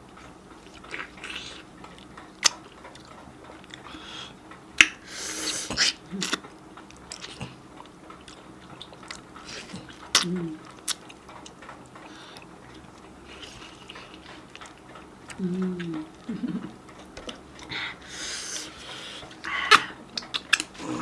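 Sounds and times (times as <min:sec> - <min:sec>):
chewing juicy mango: 0:00.0 - 0:04.1, 0:04.8 - 0:21.0
wet mouth clicks: 0:19.6 - 0:20.8.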